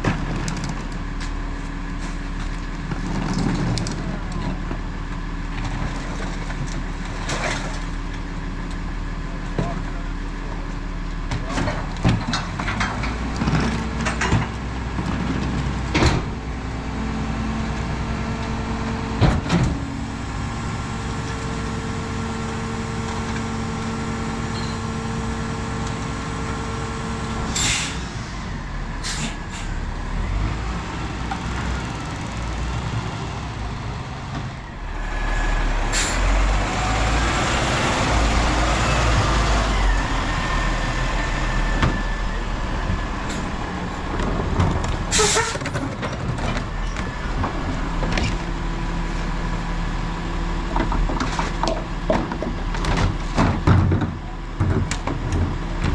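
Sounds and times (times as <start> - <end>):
diesel engine: 0.0 - 55.9
hydraulic whine: 18.2 - 29.8, 38.0 - 45.8
air brake hisses: 27.5 - 28.4, 29.0 - 29.8, 35.9 - 36.2.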